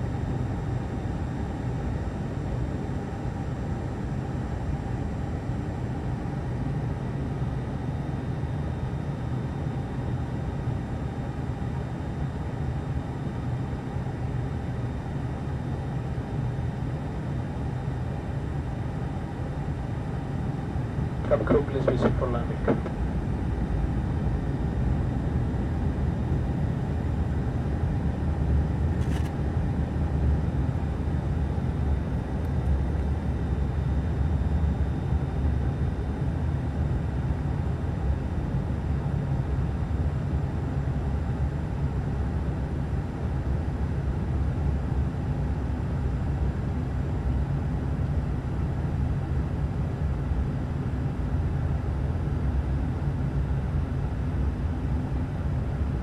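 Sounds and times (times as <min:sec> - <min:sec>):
propeller and engine hum: 0:00.0 - 0:41.1.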